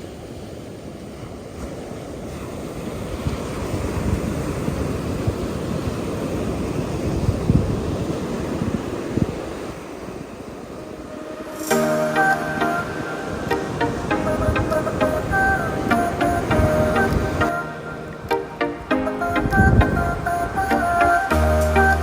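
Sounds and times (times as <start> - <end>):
ocean surf: 0.0 - 22.0
wind buffeting microphone: 2.3 - 11.2.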